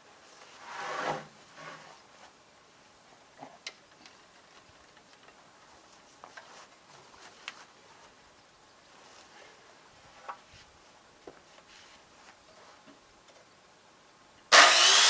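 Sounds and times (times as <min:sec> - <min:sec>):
rustling or scraping: 0:00.2 - 0:02.4, 0:11.4 - 0:12.8.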